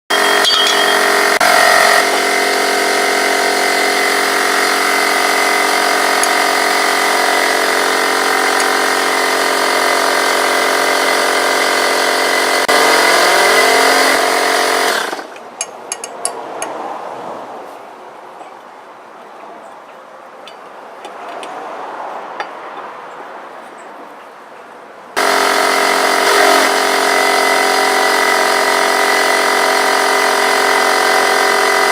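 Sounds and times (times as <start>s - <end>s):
power tool motor running: 0.1s - 15.4s, 25.2s - 31.9s.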